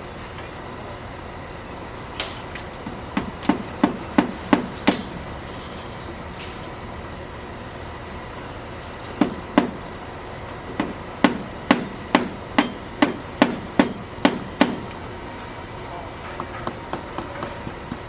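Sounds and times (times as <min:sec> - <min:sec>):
hammer blows: 0:02.9 - 0:05.7, 0:09.2 - 0:09.9, 0:10.6 - 0:15.0.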